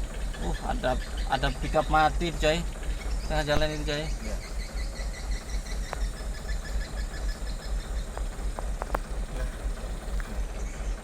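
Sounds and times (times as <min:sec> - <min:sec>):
vehicle engine idling: 0:00.0 - 0:11.0
sharp clicks: 0:05.6 - 0:06.2, 0:08.1 - 0:09.2.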